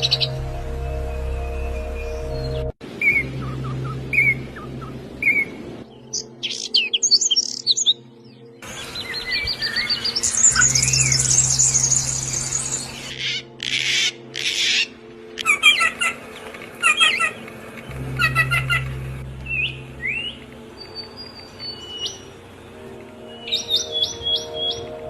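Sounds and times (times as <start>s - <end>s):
birds chirping and calling: 0.0s - 25.0s.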